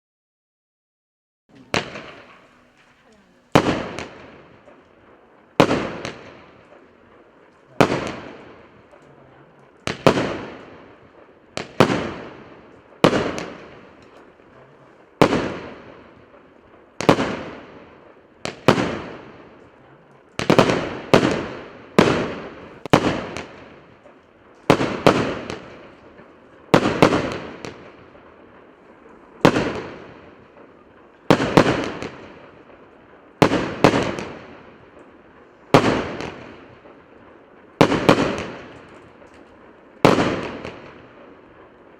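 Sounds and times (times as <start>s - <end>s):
firework cake bangs: 1.5s - 4.9s, 5.5s - 6.9s, 7.7s - 8.9s, 9.9s - 11.0s, 11.6s - 14.2s, 15.2s - 16.1s, 18.5s - 19.6s, 20.4s - 24.1s, 24.7s - 28.6s, 29.4s - 32.8s, 33.4s - 35.0s, 35.7s - 37.0s, 37.8s - 41.2s.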